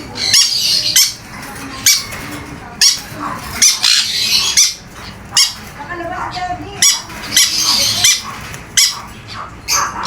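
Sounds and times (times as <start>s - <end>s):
bird squawking harshly: 2.8s - 10.0s.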